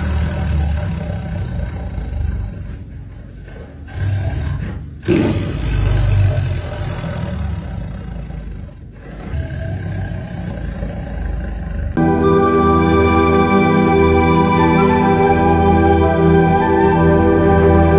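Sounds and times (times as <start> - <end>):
lion roaring: 0.0 - 12.4.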